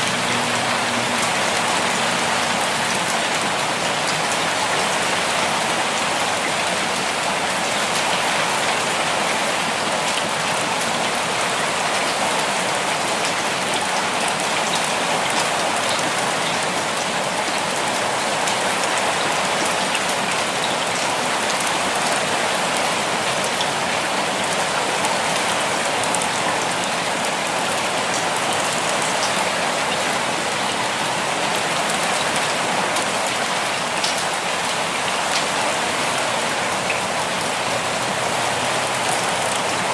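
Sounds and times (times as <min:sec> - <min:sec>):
steady rainfall hiss: 0:00.0 - 0:39.9.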